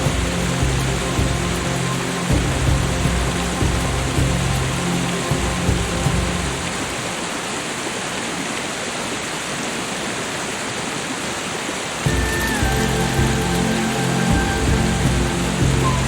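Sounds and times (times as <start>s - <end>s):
rushing water: 0.0s - 16.0s
soft music with held tones: 12.0s - 16.0s.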